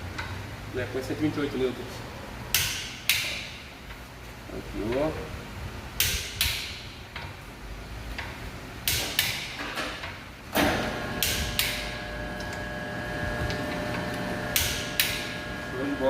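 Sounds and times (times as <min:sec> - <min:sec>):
steady tonal hum: 0:10.8 - 0:16.0.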